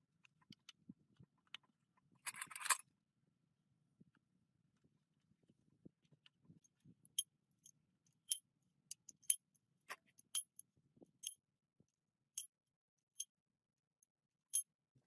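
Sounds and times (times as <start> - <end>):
small metallic clinks: 7.1 - 11.4, 12.4 - 12.6.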